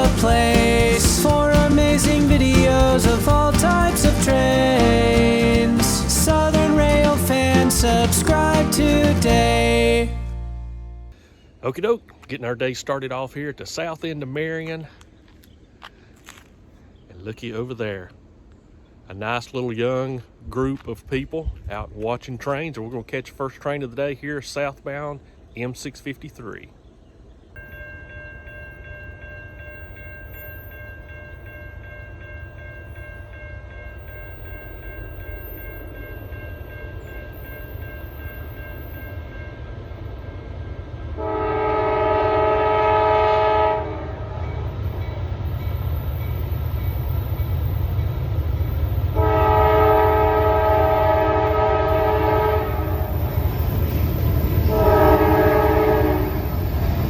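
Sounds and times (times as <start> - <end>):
steady chord of tones: 0.0 - 11.3
train engine rumble: 0.0 - 11.3, 27.9 - 57.0
train horn blasts: 41.2 - 44.6, 49.1 - 53.4, 54.6 - 56.7.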